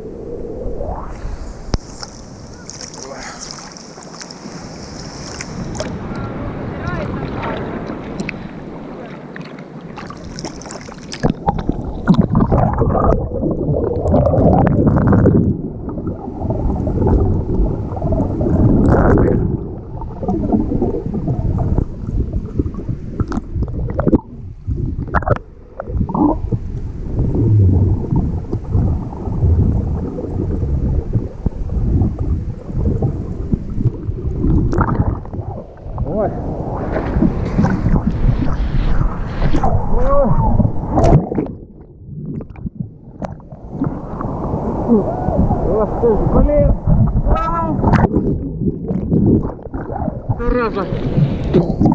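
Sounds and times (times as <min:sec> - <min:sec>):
rough surf splashing: 0:00.0 - 0:14.1, 0:26.9 - 0:41.6, 0:43.6 - 0:51.9.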